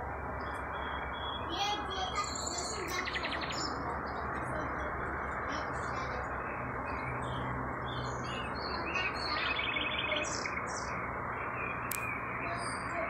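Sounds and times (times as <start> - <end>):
small birds chirping: 0.0 - 13.0
steady rushing background noise: 0.0 - 13.0
sharp click: 11.9 - 12.1.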